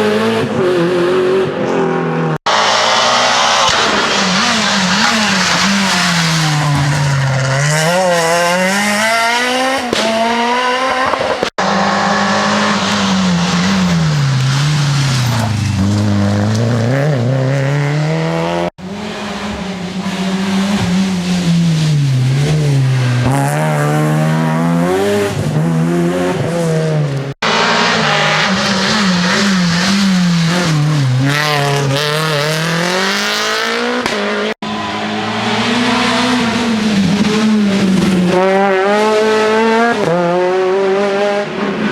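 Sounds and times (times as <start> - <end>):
rally car engines revving: 0.0 - 41.9
tyre squeal: 4.0 - 8.1.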